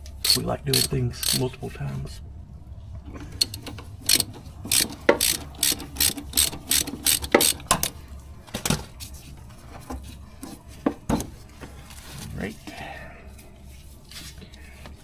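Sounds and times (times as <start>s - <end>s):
ratchet wrench clicking: 0.2s - 1.4s, 3.4s - 8.0s.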